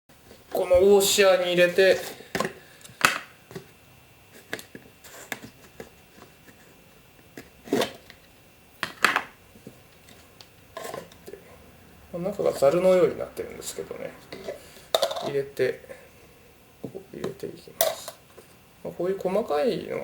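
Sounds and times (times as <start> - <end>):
clicks and knocks of container handling: 14.4 - 15.4.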